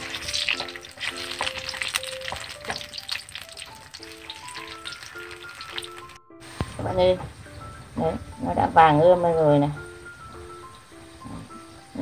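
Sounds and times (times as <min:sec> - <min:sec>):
slices deep-frying in oil: 0:00.0 - 0:06.7.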